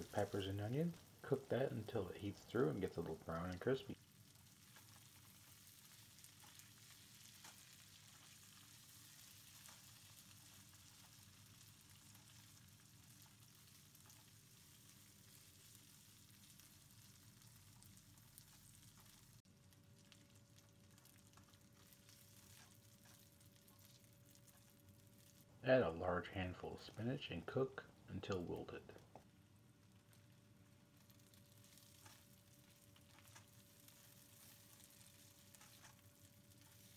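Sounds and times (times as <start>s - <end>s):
potatoes sizzling in a skillet: 0.0s - 25.5s, 29.3s - 36.9s
spatula scraping a skillet: 31.7s - 36.9s.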